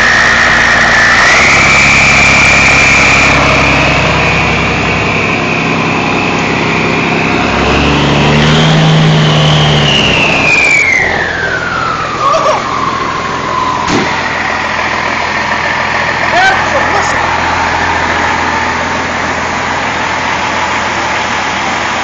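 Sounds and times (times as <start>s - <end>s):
turbo whistle: 0.0s - 5.4s, 9.0s - 12.8s
truck engine revving: 0.0s - 22.0s.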